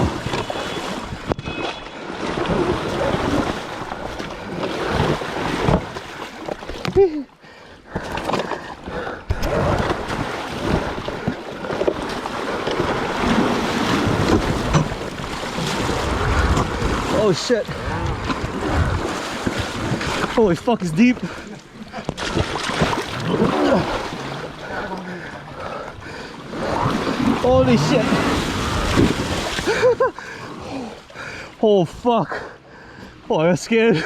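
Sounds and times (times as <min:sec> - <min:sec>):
knocks and jolts from terrain: 0:00.0 - 0:07.1, 0:07.9 - 0:21.2, 0:21.9 - 0:24.2, 0:26.6 - 0:30.0
wind buffeting microphone: 0:13.4 - 0:20.4.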